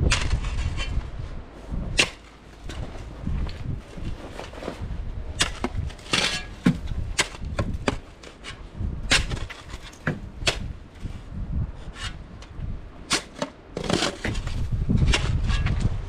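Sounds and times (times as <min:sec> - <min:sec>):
low rumble: 0:10.2 - 0:13.1.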